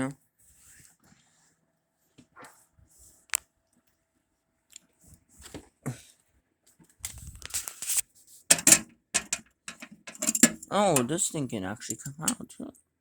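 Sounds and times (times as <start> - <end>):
rubbing and scrubbing in microwave: 7.7 - 12.4.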